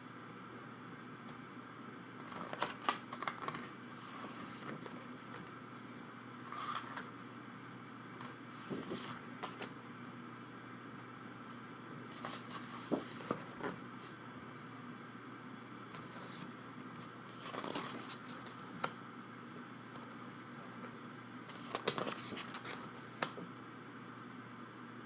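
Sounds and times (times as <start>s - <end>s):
low room hum: 0.0s - 25.0s
book pages being turned: 2.2s - 7.1s, 8.2s - 9.8s, 11.5s - 14.2s, 15.9s - 19.0s, 21.5s - 23.4s.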